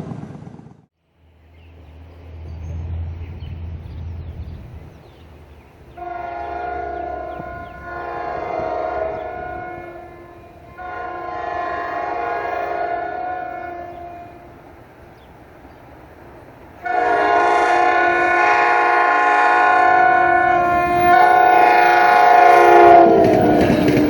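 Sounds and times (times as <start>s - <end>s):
train air horn blasts: 5.9s - 14.7s, 16.8s - 24.0s.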